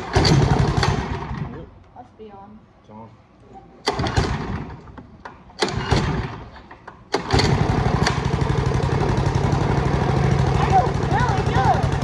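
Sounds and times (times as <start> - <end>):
go-kart engine starting: 0.0 - 1.6, 3.9 - 4.8, 5.6 - 12.0.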